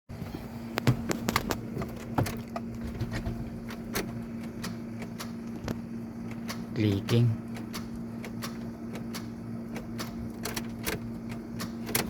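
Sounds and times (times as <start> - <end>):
steady low hum: 0.1 - 12.0
starter solenoid clicking: 3.6 - 12.0.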